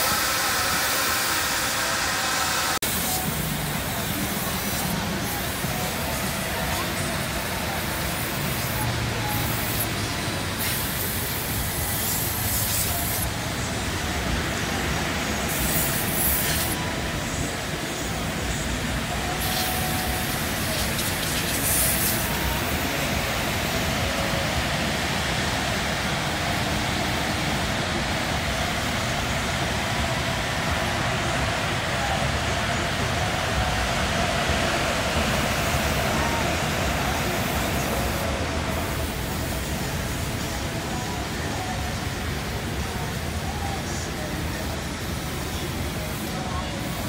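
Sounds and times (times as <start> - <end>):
short hissing bursts: 0.0 - 13.6, 14.3 - 16.8, 17.8 - 25.2.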